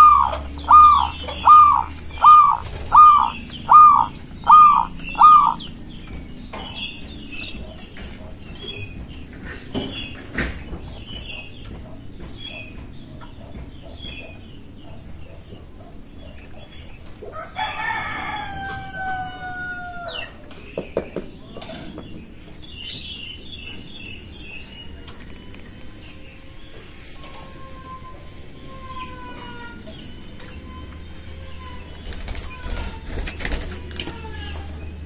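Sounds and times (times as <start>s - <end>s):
small birds chirping: 0.0s - 35.0s
rooster crowing: 17.3s - 20.3s.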